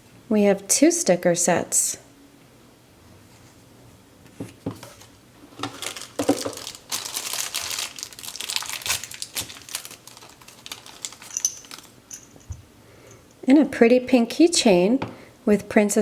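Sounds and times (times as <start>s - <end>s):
plastic packaging crinkling: 4.8s - 12.4s.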